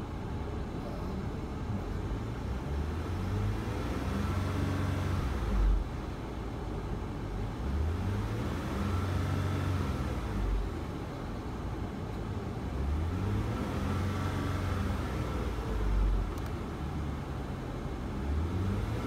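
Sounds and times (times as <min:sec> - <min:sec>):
car engine revving: 0:12.7 - 0:16.2, 0:18.1 - 0:19.0.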